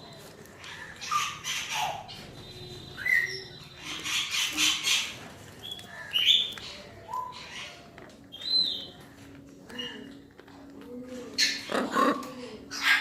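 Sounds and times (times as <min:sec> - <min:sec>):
parrot squawking: 0:00.6 - 0:02.2, 0:02.9 - 0:05.2, 0:11.3 - 0:13.0.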